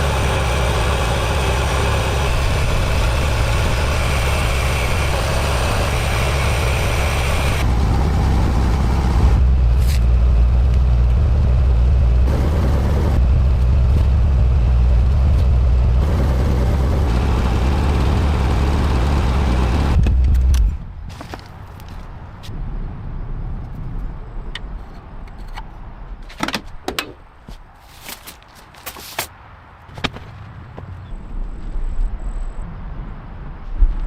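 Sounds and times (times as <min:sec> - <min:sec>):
car engine idling: 0:00.0 - 0:20.3.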